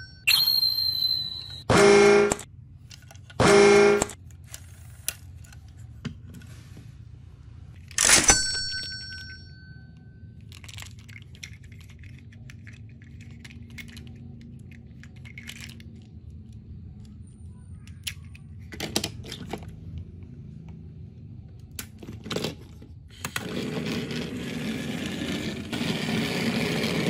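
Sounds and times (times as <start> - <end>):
toy electronic buzzy tone: 0.3 - 2.4, 3.4 - 4.2
plastic toy trains rattling: 10.4 - 16.6.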